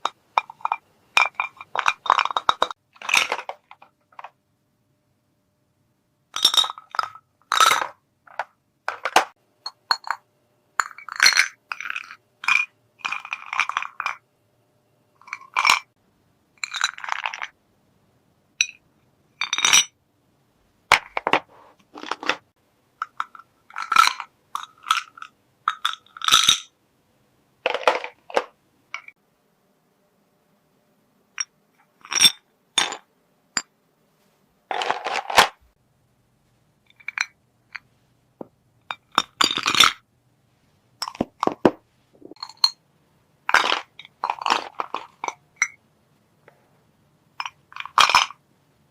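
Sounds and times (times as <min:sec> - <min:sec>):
toy pieces clinking and tapping: 0:00.0 - 0:04.3, 0:06.4 - 0:10.2, 0:10.8 - 0:14.2, 0:23.0 - 0:26.7, 0:38.9 - 0:40.0, 0:43.5 - 0:45.8, 0:47.4 - 0:48.4.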